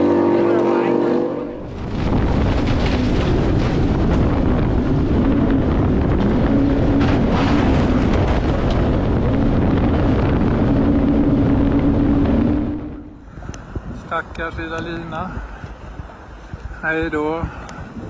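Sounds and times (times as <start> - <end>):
boat engine humming: 0.0 - 13.9
wind noise on microphone: 0.0 - 18.0.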